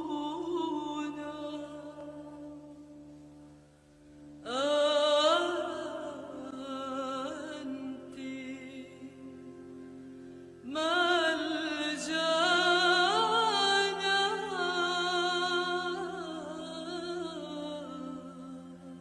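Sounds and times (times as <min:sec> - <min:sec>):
woman singing a slow hymn: 0:04.5 - 0:08.0.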